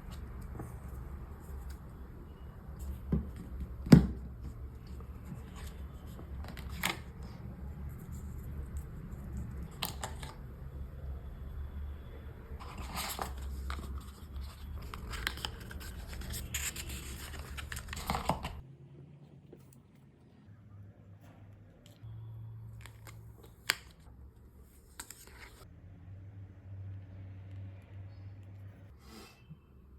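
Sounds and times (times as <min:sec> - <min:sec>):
paper and cardboard rustling: 0:12.6 - 0:18.6.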